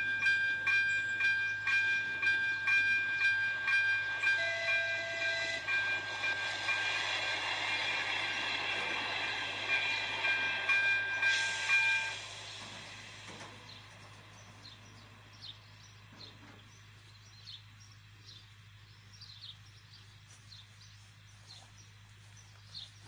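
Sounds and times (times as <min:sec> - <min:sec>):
high tones over train: 0:00.0 - 0:15.0
passing train rumble: 0:00.0 - 0:23.0.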